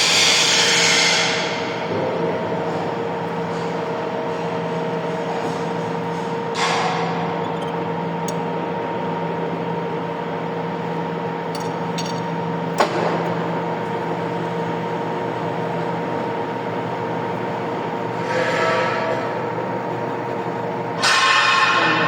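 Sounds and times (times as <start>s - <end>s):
sharp metallic click: 11.5s - 12.3s.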